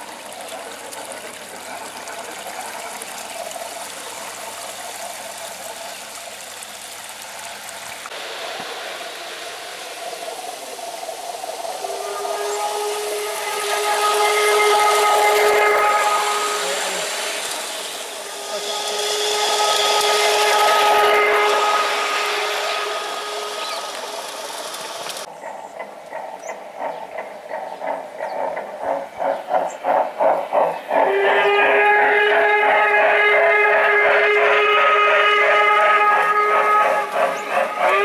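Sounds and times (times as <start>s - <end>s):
steam hiss: 0.0s - 25.3s, 26.2s - 38.0s
steam chuffs: 0.0s - 38.0s
model train steam whistle: 8.6s - 25.3s, 30.9s - 38.0s.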